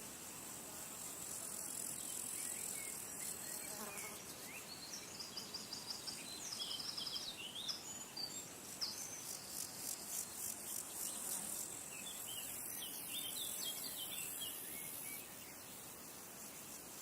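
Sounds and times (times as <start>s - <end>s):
insects trilling: 0.3s - 17.0s
bird chirping: 2.1s - 9.7s, 10.6s - 15.6s.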